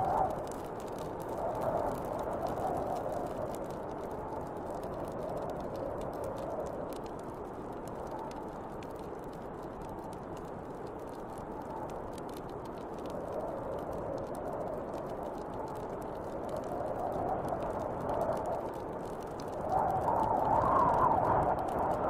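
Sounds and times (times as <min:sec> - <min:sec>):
wind blowing in gusts: 0:00.0 - 0:09.2, 0:11.4 - 0:22.0
bonfire crackling: 0:00.0 - 0:22.0.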